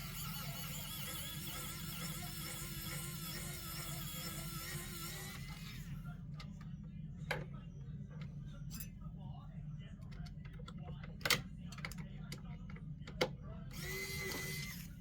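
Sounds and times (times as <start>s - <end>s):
electric screwdriver whining: 13.8s - 14.9s.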